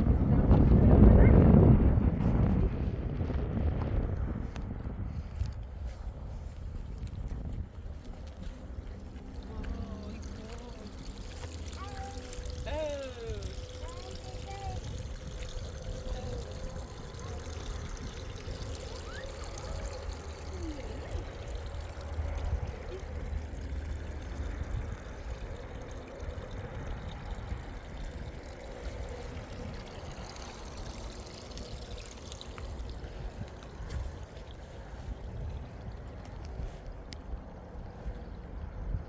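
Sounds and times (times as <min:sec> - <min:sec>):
spring water pouring: 0:07.0 - 0:36.3.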